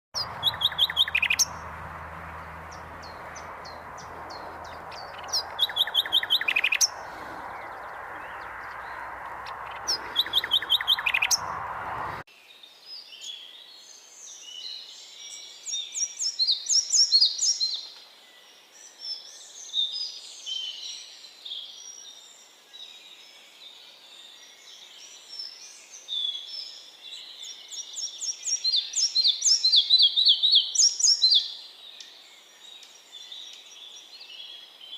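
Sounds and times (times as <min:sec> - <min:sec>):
bird trilling: 0:00.2 - 0:01.6, 0:02.7 - 0:11.5
birds chirping and calling: 0:00.2 - 0:12.2
rushing background noise: 0:00.2 - 0:12.2.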